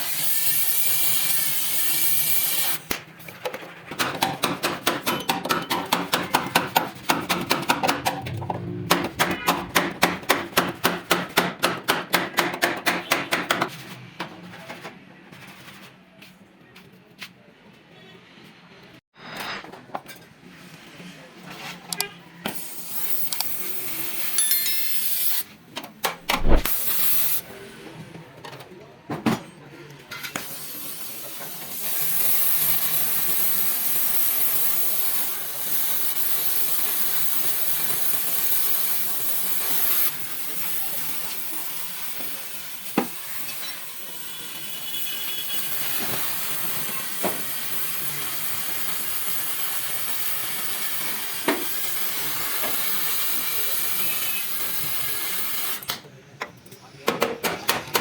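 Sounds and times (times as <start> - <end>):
sharp metal clanks and knocks: 4.0 - 13.7
loud hiss of compressed air: 22.5 - 25.5, 26.3 - 27.4, 30.4 - 55.9.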